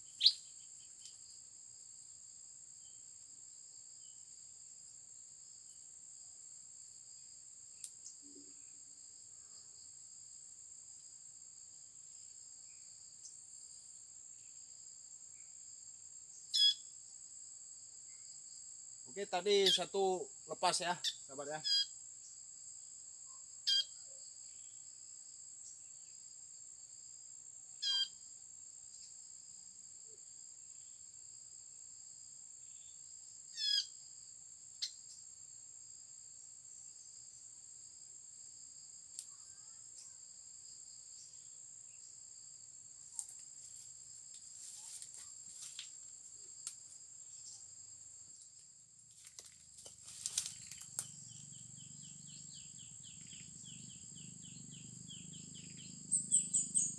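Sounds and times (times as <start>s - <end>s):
high-pitched insect drone: 16.4s - 17.1s, 49.1s - 56.9s
clicks and rustling: 49.2s - 51.0s.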